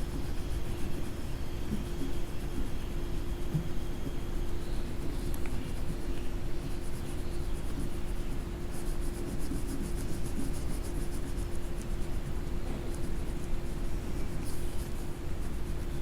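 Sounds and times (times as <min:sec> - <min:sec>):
coloring tool scribbling on paper: 0:00.0 - 0:16.0
steady low hum: 0:00.0 - 0:16.0.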